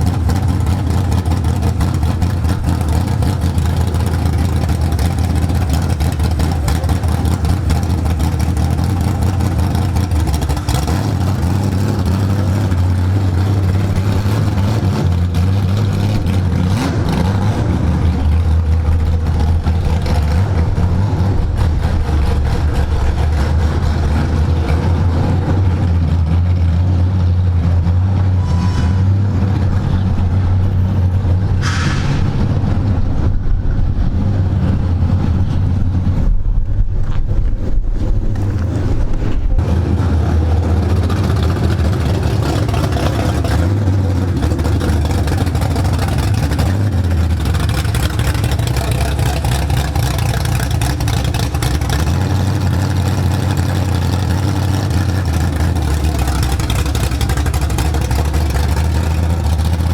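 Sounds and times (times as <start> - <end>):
race car engine running: 0.0 - 59.9
brief high hiss: 31.6 - 32.5.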